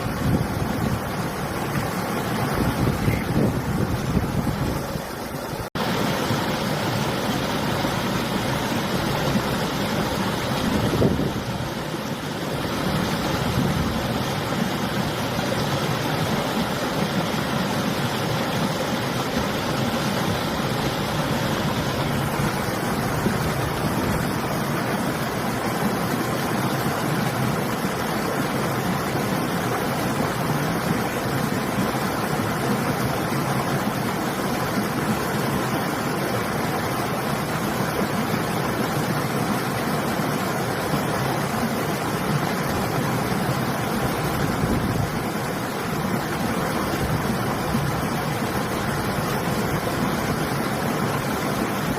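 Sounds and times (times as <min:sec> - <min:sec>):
wind blowing: 0:00.0 - 0:25.1
river water rushing: 0:00.0 - 0:51.9.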